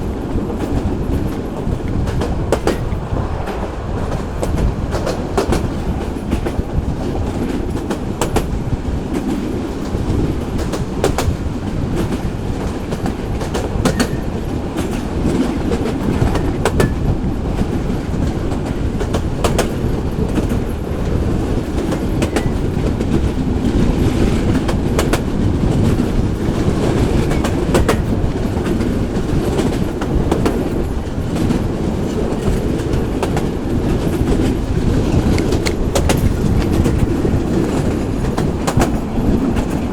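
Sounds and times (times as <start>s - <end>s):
rail joints clacking: 0.0s - 39.9s
train wheels rumbling on rail: 0.0s - 39.9s.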